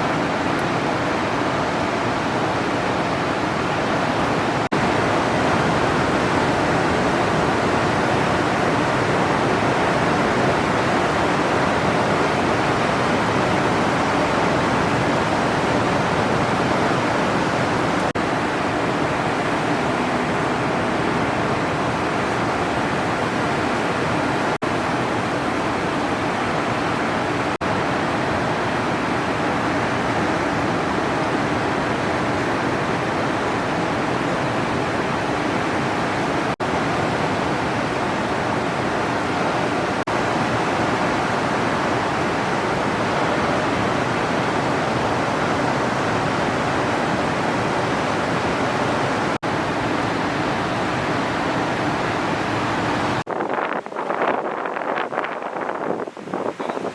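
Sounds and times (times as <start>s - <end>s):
ocean surf breaking on reef: 0.0s - 56.9s.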